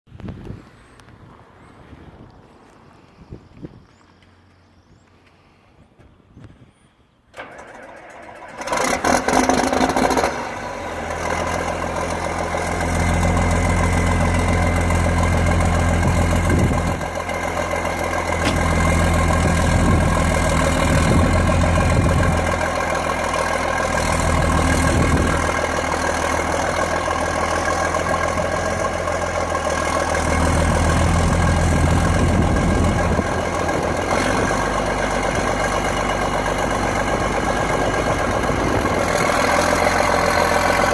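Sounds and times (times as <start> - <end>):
diesel tractor engine starting: 7.3 - 40.9
engine revving: 8.1 - 40.9
deep low engine drone: 9.1 - 40.9.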